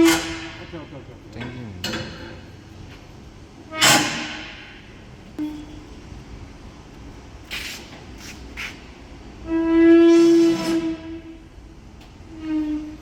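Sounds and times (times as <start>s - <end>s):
loud metal clang: 3.8s - 5.0s
short scraping hisses: 7.5s - 8.8s.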